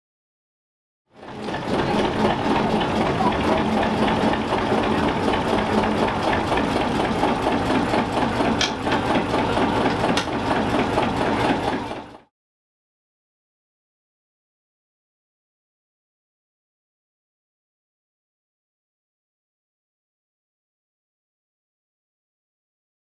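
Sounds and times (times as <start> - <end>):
diesel locomotive engine running: 1.2 - 12.2.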